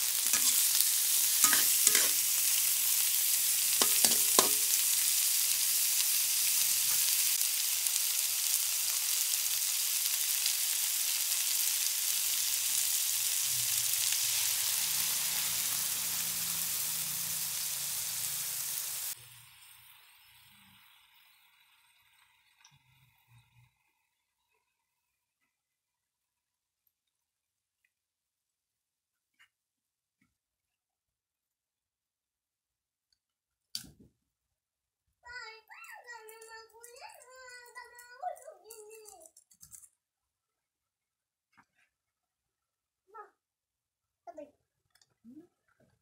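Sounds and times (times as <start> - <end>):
food sizzling in a wok: 0.0 - 25.4
metal spatula clinking on pan: 0.3 - 0.7, 1.4 - 2.2, 3.8 - 4.8.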